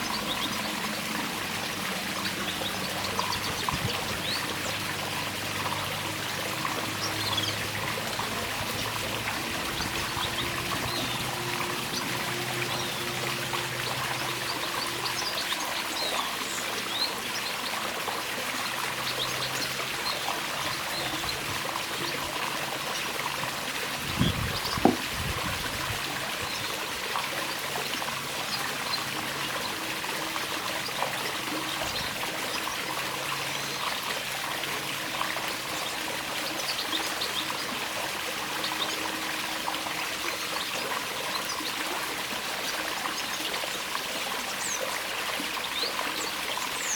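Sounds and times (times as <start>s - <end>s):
water trickling: 0.0s - 46.9s
sharp knocks: 24.8s - 25.2s.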